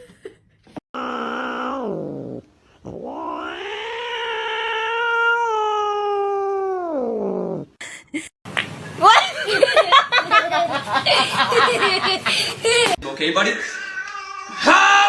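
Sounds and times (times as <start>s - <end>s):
cat yowling: 1.0s - 2.1s, 3.0s - 7.2s.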